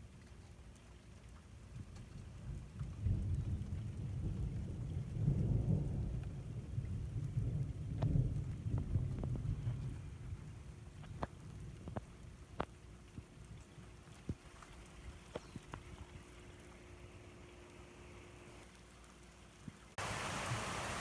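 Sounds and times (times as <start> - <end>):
rain falling: 0.0 - 21.0
raindrops ticking close by: 0.0 - 21.0
thunder rumbling: 3.0 - 11.8.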